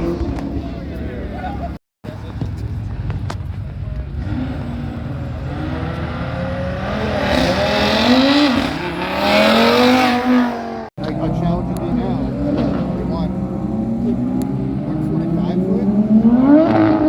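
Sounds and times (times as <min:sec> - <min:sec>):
car engine revving hard: 0:04.1 - 0:17.0.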